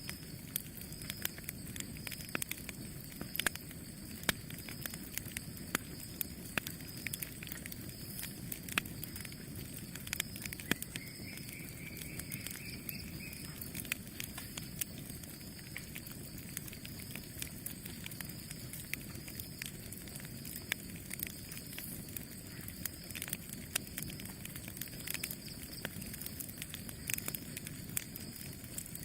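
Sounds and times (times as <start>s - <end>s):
campfire flames rushing: 0.0s - 29.0s
wood crackling and popping: 0.0s - 29.0s.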